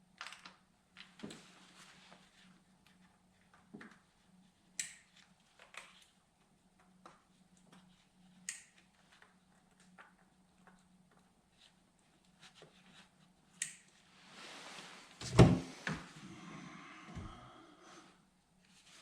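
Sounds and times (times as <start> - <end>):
light clicks and taps of tools: 4.8 - 6.1.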